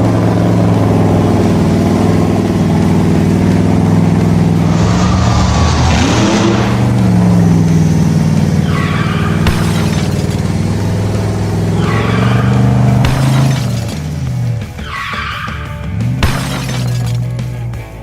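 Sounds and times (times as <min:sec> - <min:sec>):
vehicle engine running: 0:00.0 - 0:18.0
short falling screeches: 0:04.5 - 0:07.6, 0:08.6 - 0:10.4, 0:11.6 - 0:14.0, 0:14.8 - 0:15.7.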